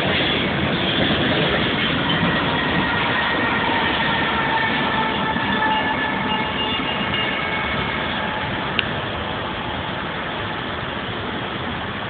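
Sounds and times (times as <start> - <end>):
train wheel squeal: 0.0 - 8.7
freight train rumbling: 0.0 - 12.0.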